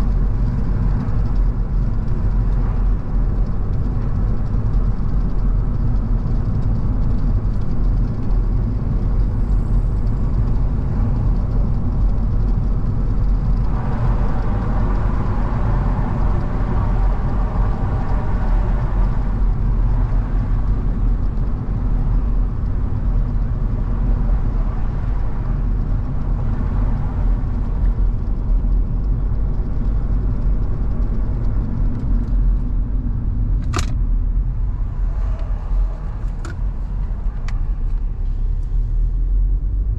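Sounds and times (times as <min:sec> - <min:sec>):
car engine and tyre noise: 0:00.0 - 0:39.9
sharp click: 0:33.6 - 0:34.0.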